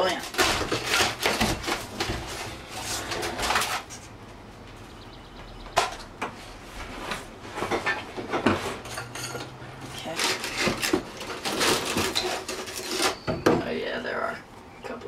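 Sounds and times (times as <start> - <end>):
foam and wood scraping and tearing: 0.0 - 4.1, 9.9 - 13.2.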